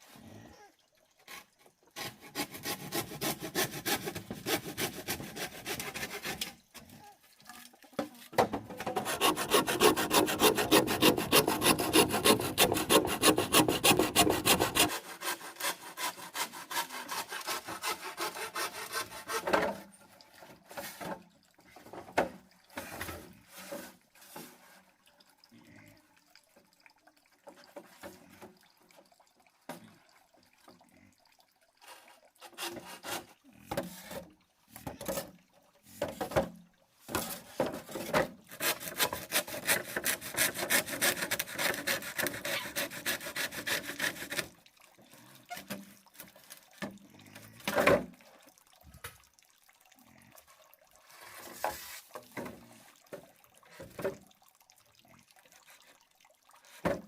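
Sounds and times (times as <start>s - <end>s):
hand sawing wood: 2.0s - 6.6s, 8.8s - 19.8s, 32.4s - 34.2s, 37.1s - 44.6s.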